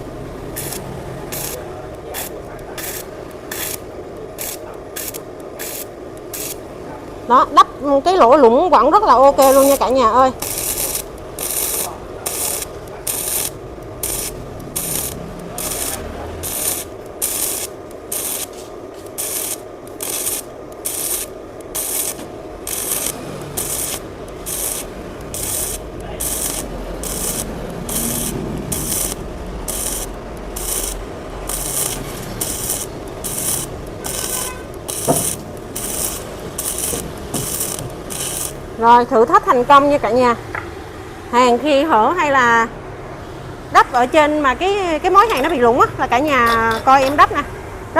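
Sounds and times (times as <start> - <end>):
wire brush scrubbing steel: 9.4 - 38.6.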